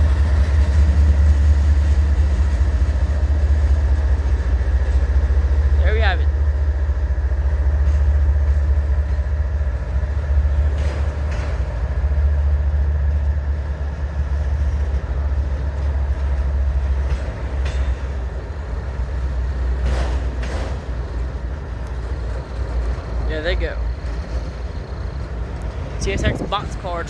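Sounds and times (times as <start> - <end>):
diesel locomotive rumble: 0.0 - 27.0
knocks from rolling cars: 10.5 - 12.1, 19.7 - 21.3.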